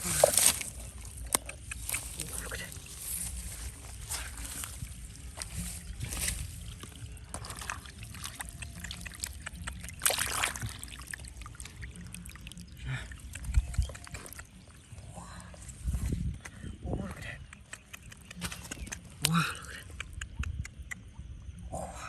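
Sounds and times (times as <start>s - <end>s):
hands clicking and knocking in water: 0.0s - 14.7s, 17.4s - 21.0s
water sloshing and trickling: 0.0s - 15.0s
water splash: 10.0s - 11.8s.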